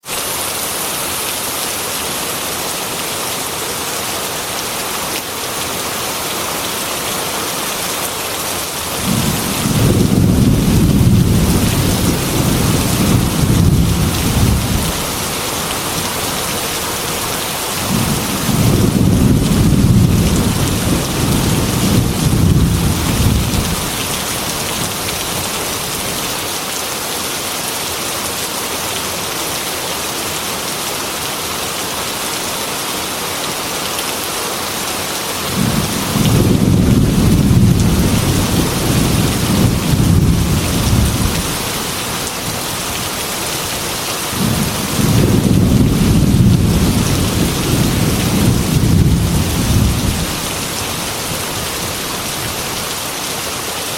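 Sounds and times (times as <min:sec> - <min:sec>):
heavy rain on a metal roof: 0:00.0 - 0:53.9
low rolls of thunder: 0:08.9 - 0:15.2, 0:17.8 - 0:24.0, 0:35.5 - 0:41.6, 0:44.4 - 0:50.5.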